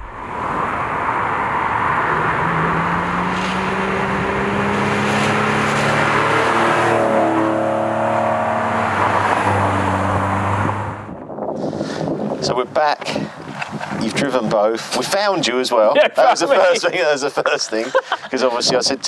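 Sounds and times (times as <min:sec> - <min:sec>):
car engine accelerating: 0:00.0 - 0:11.1.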